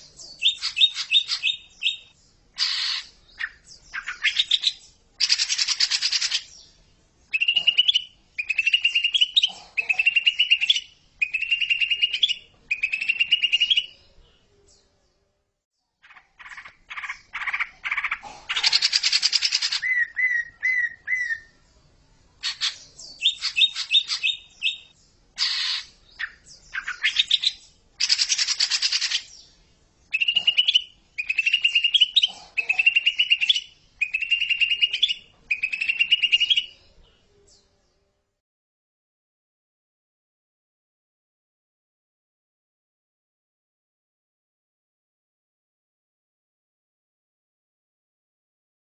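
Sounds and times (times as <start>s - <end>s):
bird singing chirps and trills: 0.0s - 15.3s, 15.9s - 21.8s, 22.4s - 38.1s.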